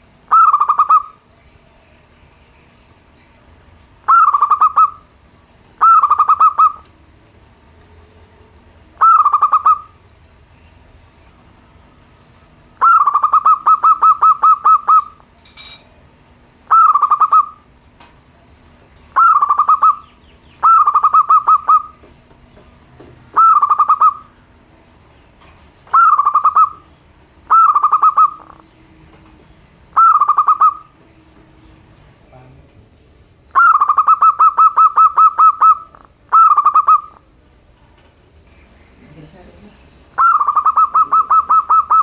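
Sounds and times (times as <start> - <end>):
dove cooing: 0.3 - 1.3, 4.0 - 5.0, 5.8 - 6.9, 9.0 - 10.0, 12.8 - 15.3, 16.7 - 17.7, 19.1 - 22.1, 23.3 - 24.4, 25.9 - 28.8, 29.9 - 31.1, 33.5 - 37.4, 40.2 - 42.0.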